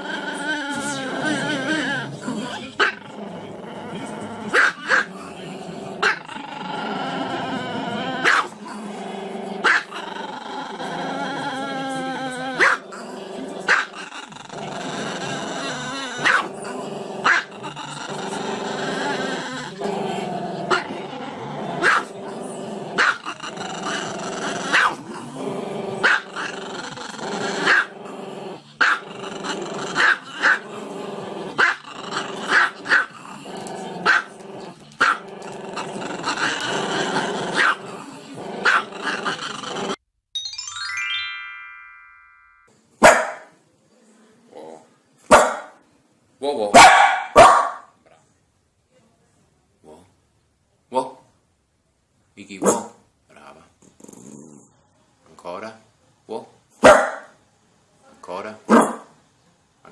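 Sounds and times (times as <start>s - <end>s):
dog barking: 4.5s - 5.1s, 8.2s - 8.5s, 9.6s - 9.9s, 12.6s - 12.8s, 13.7s - 13.9s, 16.2s - 16.5s, 21.8s - 22.1s, 24.7s - 25.0s, 34.0s - 34.3s, 37.6s - 37.8s, 43.0s - 43.5s, 45.3s - 45.8s, 46.7s - 48.0s, 52.6s - 53.0s, 56.8s - 57.4s, 58.7s - 59.1s.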